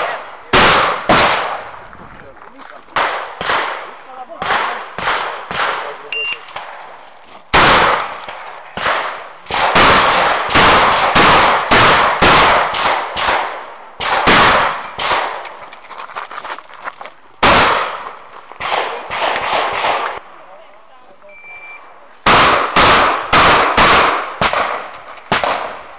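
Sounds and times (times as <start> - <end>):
shotgun shots: 0.0 - 2.0, 2.9 - 6.9, 7.5 - 15.6, 17.4 - 20.2, 22.2 - 25.9.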